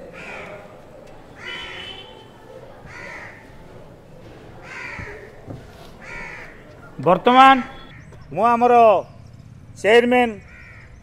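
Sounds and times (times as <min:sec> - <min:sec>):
bird harsh calls: 0:01.3 - 0:02.2, 0:04.6 - 0:05.3, 0:06.0 - 0:08.4, 0:10.4 - 0:11.0.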